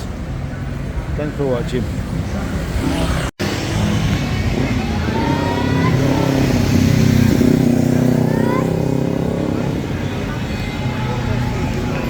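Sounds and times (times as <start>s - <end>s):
street traffic: 0.0s - 12.0s
vehicle engine accelerating: 2.4s - 10.4s.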